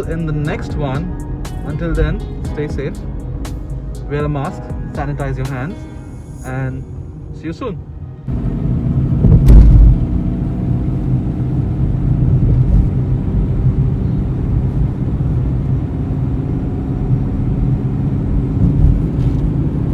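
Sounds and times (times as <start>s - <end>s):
car engine and road noise: 0.0s - 19.9s
thump: 9.4s - 10.0s.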